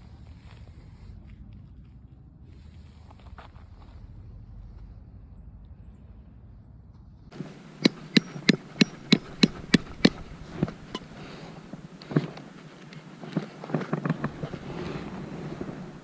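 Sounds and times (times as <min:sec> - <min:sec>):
low wind rumble: 0:00.0 - 0:16.0
sharp hammer blows: 0:07.3 - 0:12.0.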